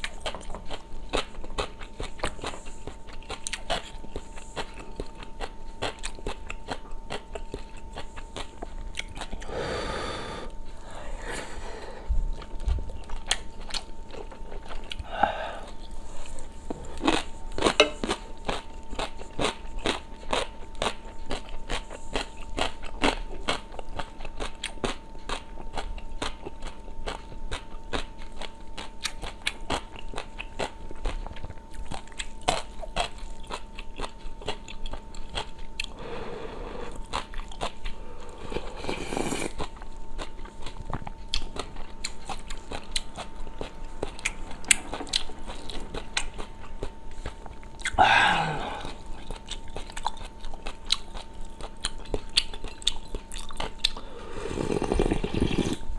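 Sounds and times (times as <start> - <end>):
chewing and crunching: 0.0 - 9.5, 12.2 - 48.0, 48.6 - 55.9
faint steady hum: 0.0 - 55.9
slurping soup: 38.3 - 39.8, 54.1 - 55.9.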